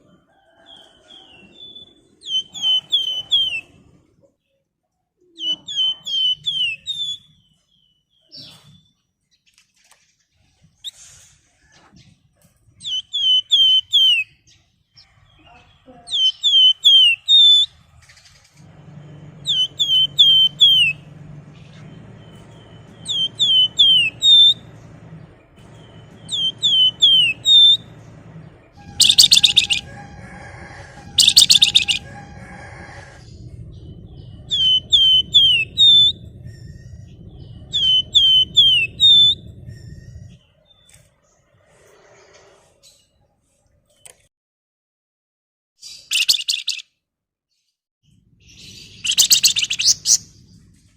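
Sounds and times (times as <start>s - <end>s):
songbird whistling: 0.8s - 3.7s, 5.4s - 7.4s, 12.8s - 14.3s, 16.1s - 17.8s, 18.8s - 24.8s, 25.6s - 28.0s, 28.8s - 40.4s, 46.0s - 46.8s, 48.6s - 50.3s
harsh rattling bird call: 16.2s - 28.1s, 28.8s - 40.4s, 48.6s - 50.4s
steady low hum: 17.7s - 40.6s.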